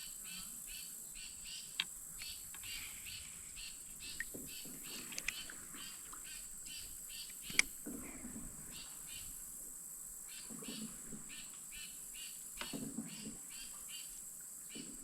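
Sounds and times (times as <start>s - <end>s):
sharp clicks: 4.9s - 5.5s, 7.3s - 7.8s.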